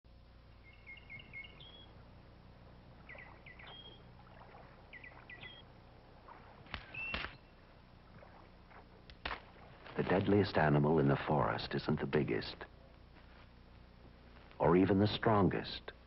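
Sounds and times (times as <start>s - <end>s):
low steady hum: 0.0s - 16.0s
small songbird chirping: 0.4s - 2.3s, 2.9s - 5.8s.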